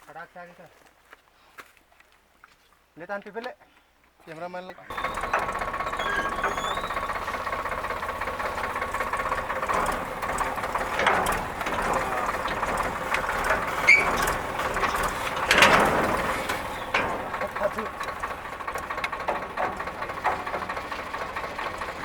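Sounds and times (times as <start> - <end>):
tractor engine: 4.8 - 22.0
wheat thresher running: 4.9 - 22.0.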